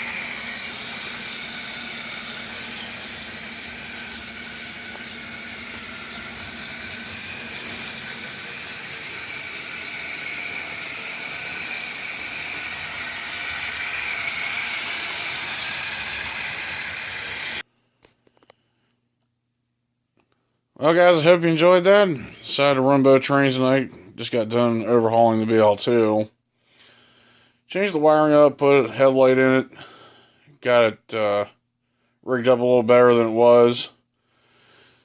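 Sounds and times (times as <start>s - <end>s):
electric motor whine: 0.0s - 17.6s
toy train wheels rattling: 0.0s - 17.6s.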